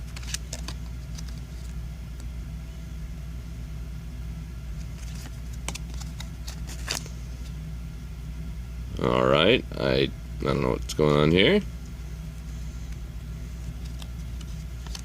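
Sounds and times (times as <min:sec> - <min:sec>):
trading cards being handled: 0:00.0 - 0:02.3, 0:04.8 - 0:07.6, 0:12.4 - 0:15.0
steady low hum: 0:00.0 - 0:15.0.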